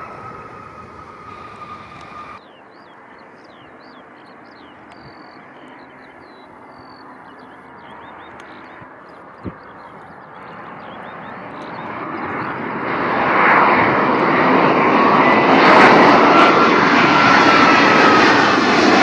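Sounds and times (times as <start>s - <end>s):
jet engines whining: 0.0s - 2.4s, 9.5s - 19.0s
small birds chirping: 0.0s - 12.7s
distant jet traffic roar: 0.0s - 19.0s.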